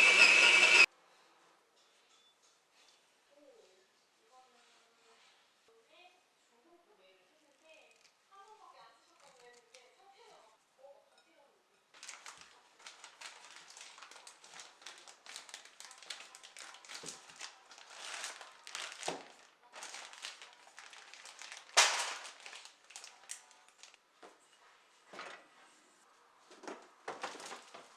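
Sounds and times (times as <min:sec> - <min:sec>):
crinkling and rustling: 0:09.1 - 0:09.9, 0:12.0 - 0:25.8, 0:26.4 - 0:27.9.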